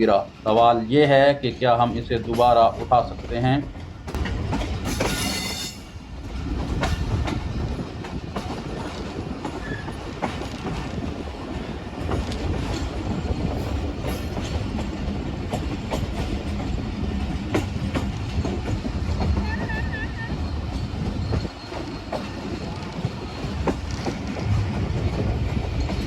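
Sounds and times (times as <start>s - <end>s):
train rumbling on rails: 0.0s - 26.0s
wheels clicking over rail joints: 0.0s - 26.0s
metallic wheel squeal: 5.0s - 5.9s, 19.2s - 24.0s.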